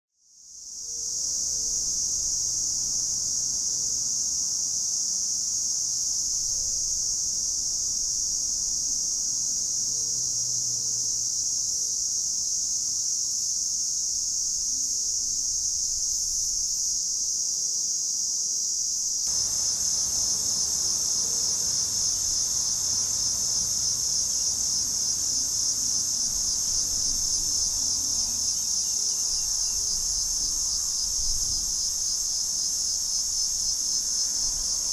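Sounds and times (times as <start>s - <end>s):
cicada buzzing: 19.3s - 34.9s.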